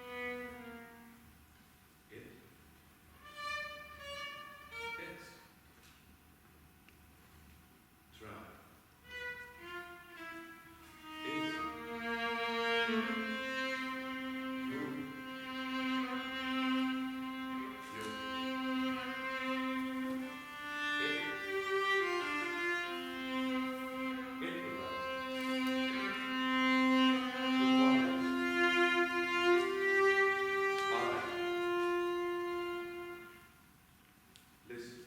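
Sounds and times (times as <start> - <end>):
bowed strings sustained notes: 9.1 - 33.5.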